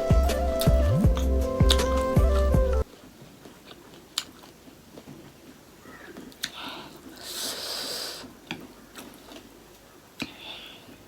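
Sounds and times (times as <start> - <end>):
mouth clicks while eating: 0.6 - 2.8, 10.2 - 10.4
breathy sniff: 6.5 - 8.4.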